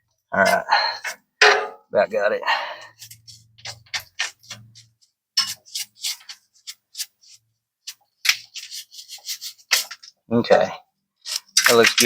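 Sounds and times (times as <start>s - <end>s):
brush scrubbing: 2.8s - 10.1s, 11.2s - 12.0s.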